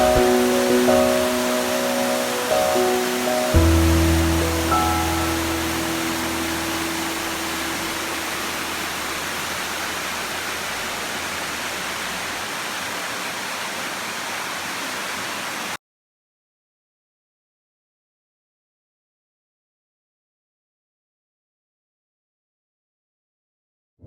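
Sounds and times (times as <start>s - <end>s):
background music held notes: 0.0s - 9.5s
waterfall rushing: 0.0s - 15.8s.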